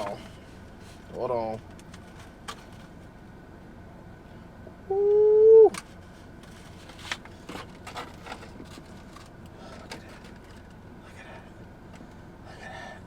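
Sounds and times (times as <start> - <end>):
food packaging clicking and rustling: 6.4 - 10.8.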